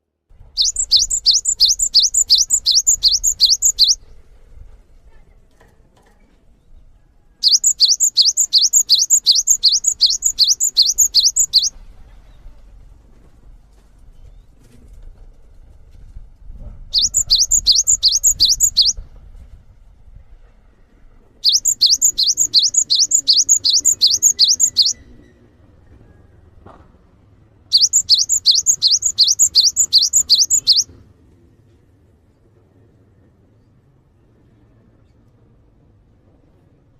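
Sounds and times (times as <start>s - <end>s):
songbird rapid high notes: 0.6s - 4.0s, 7.4s - 11.7s, 16.9s - 19.0s, 21.4s - 25.0s, 27.7s - 30.9s.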